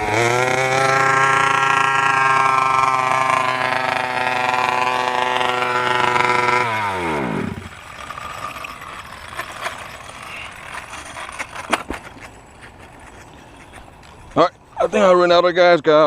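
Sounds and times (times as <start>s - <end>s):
two-stroke engine running: 0.0s - 15.2s
faint clicks and clatter: 7.7s - 14.5s.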